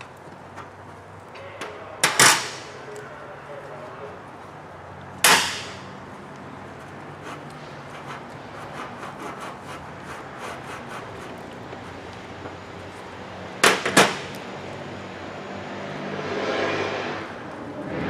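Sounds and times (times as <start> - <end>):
low shop hum: 0.0 - 18.0
loud sharp knocks: 5.2 - 5.9, 13.6 - 14.3.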